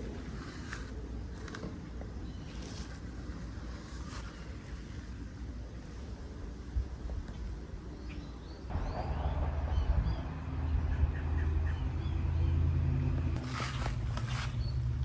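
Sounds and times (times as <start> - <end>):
birds chirping: 7.8 - 13.4
steady low rumble: 8.7 - 15.0.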